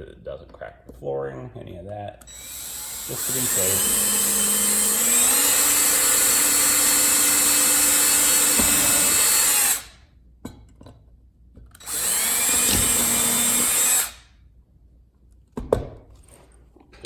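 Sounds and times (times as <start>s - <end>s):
cordless drill drilling: 2.2s - 10.0s, 11.8s - 14.3s.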